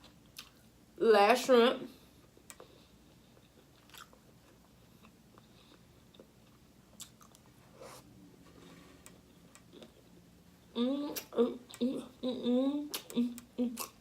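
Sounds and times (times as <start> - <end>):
soft chewing: 0.0 - 0.7, 2.1 - 14.0
mouth clicks and smacks: 12.9 - 14.0.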